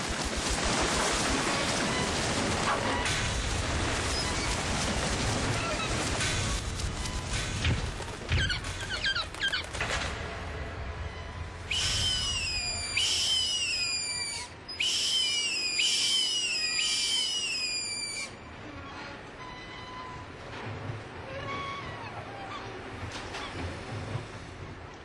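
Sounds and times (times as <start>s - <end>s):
bird whistled calls falling: 8.3s - 9.7s, 11.6s - 18.4s.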